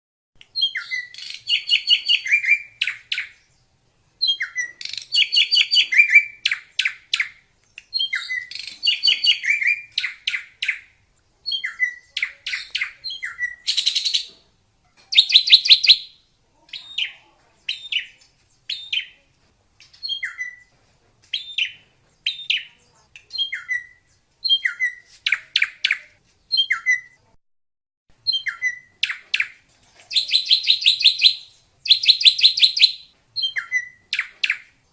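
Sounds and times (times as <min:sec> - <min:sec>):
bird singing high notes: 0:15.1 - 0:16.2.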